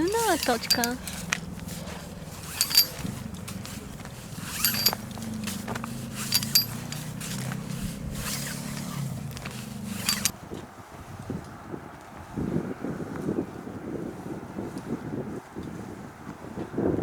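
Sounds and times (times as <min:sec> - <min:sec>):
carabiners clinking: 0:00.0 - 0:10.4
rope rasping through gear: 0:00.0 - 0:10.4
steady low rumble: 0:00.0 - 0:10.4.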